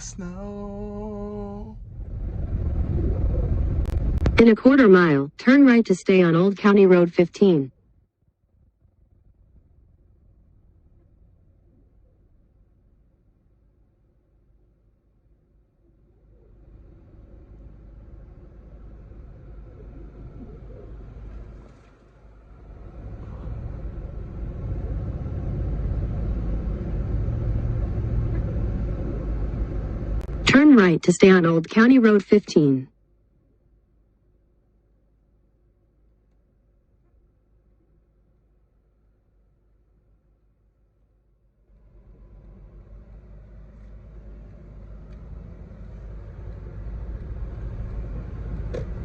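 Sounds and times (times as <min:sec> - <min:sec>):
car engine and road rumble: 0:00.0 - 0:04.4, 0:16.5 - 0:30.7, 0:41.7 - 0:49.0.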